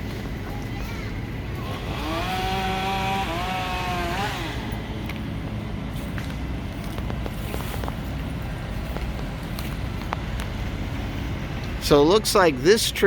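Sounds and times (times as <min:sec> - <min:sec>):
chainsaw running: 0:01.5 - 0:05.2.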